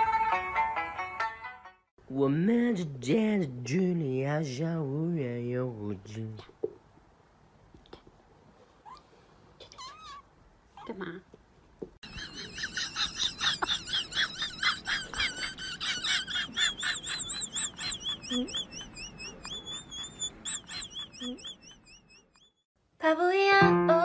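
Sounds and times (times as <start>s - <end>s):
bird chirping rapidly: 16.6s - 22.7s.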